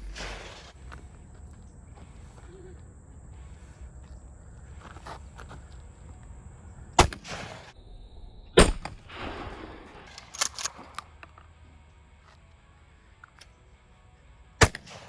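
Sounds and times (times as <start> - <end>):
shotgun shots with echo: 0.0 - 0.8, 7.0 - 7.8, 8.6 - 11.1, 14.6 - 15.0
sharp clicks: 10.1 - 11.4.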